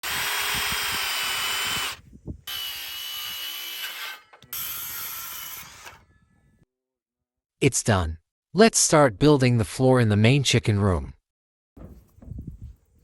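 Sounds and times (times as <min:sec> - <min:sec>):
power drill whining: 0:00.0 - 0:06.1.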